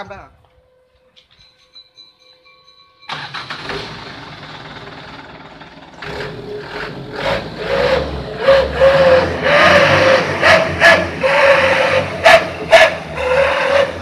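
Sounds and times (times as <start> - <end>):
truck engine revving: 3.1 - 14.0
wailing exhaust tone: 7.4 - 14.0.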